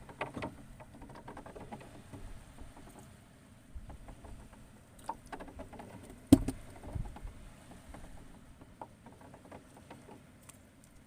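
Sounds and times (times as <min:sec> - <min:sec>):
small clicks and knocks: 0:00.0 - 0:03.1, 0:03.8 - 0:11.0
dull thuds: 0:05.4 - 0:09.6.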